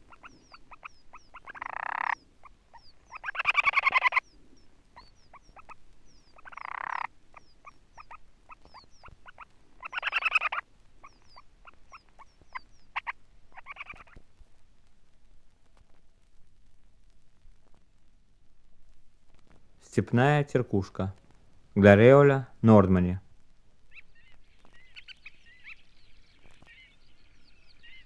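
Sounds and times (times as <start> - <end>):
bird rattling trills: 0.0 - 4.4, 5.0 - 14.2
bird ticks: 0.0 - 14.3.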